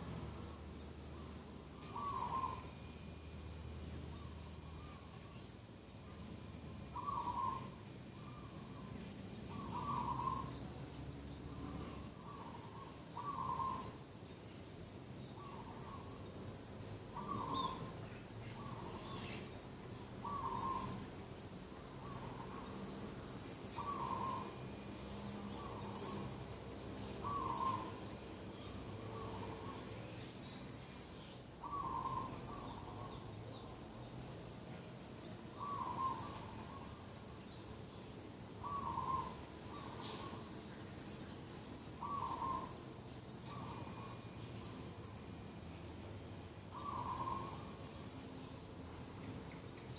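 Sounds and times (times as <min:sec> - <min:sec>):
faint bird chirps: 0:00.4 - 0:34.1, 0:35.2 - 0:45.2, 0:46.2 - 0:49.9
dove cooing: 0:01.8 - 0:02.8, 0:07.0 - 0:08.9, 0:09.5 - 0:10.6, 0:11.7 - 0:14.0, 0:17.1 - 0:18.0, 0:20.2 - 0:21.0, 0:23.7 - 0:24.8, 0:27.0 - 0:28.0, 0:31.6 - 0:33.2, 0:35.5 - 0:37.0, 0:38.6 - 0:40.5, 0:42.0 - 0:42.8, 0:43.4 - 0:44.3, 0:46.7 - 0:47.8.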